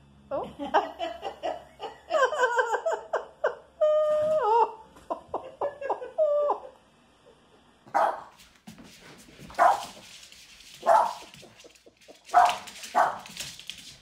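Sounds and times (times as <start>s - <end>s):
person laughing: 0.3s - 6.8s
small dog barking: 7.9s - 8.3s, 9.6s - 10.0s, 10.8s - 11.3s, 12.3s - 13.3s.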